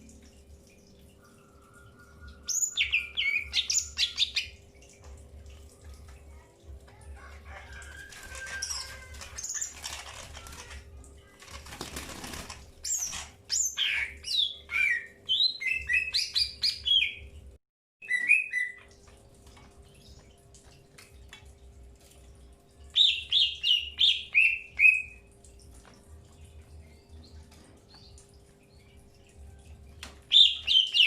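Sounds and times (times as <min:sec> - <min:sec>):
birds chirping and whistling: 0:01.2 - 0:04.6, 0:07.8 - 0:10.6, 0:12.8 - 0:17.3, 0:18.0 - 0:18.9, 0:22.9 - 0:25.3, 0:30.3 - 0:31.0.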